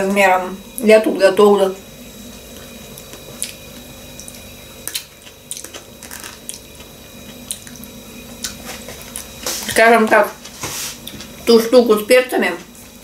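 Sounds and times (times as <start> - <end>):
faint steady hum: 0.0 - 13.0
person chewing: 2.3 - 9.8.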